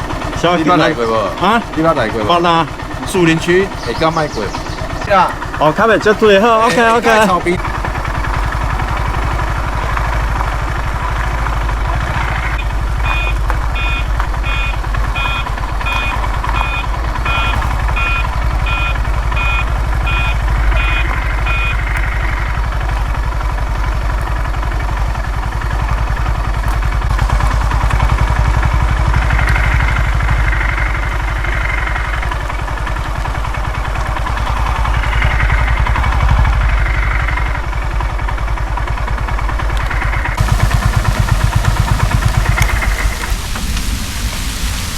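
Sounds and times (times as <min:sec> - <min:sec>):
motorcycle engine rumbling: 0:00.0 - 0:44.9
electronic beeps: 0:13.0 - 0:22.0.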